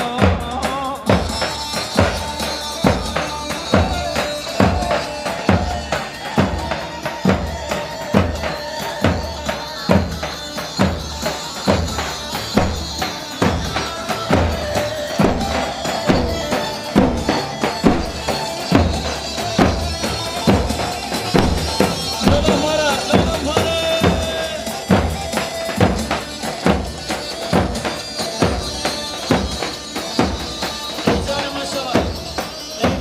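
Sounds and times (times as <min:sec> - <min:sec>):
heavy drum beat: 0:00.0 - 0:33.0
keyboard melody: 0:00.0 - 0:33.0.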